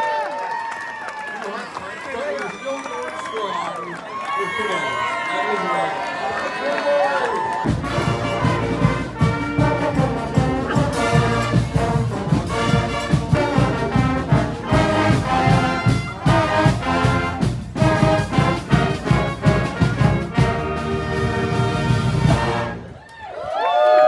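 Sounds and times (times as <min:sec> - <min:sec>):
steady drum beat: 0:07.6 - 0:22.9
brass band playing lively tune: 0:07.6 - 0:23.0.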